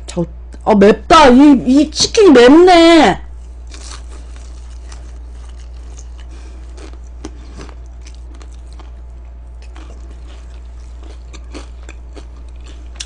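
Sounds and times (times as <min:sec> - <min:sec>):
low hum: 0:00.0 - 0:13.0
crunchy chewing: 0:03.3 - 0:13.0.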